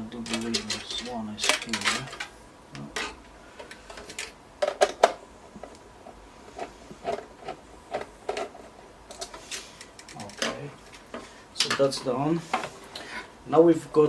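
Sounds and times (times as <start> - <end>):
computer parts clicking and knocking: 0.1 - 5.8, 6.6 - 12.7.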